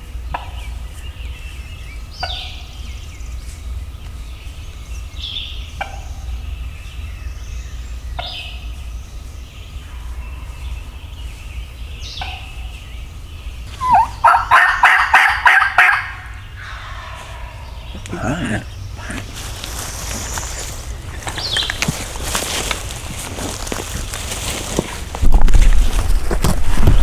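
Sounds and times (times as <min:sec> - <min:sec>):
turkey gobbling: 0:13.7 - 0:22.5
high downward-sliding calls: 0:13.7 - 0:25.1.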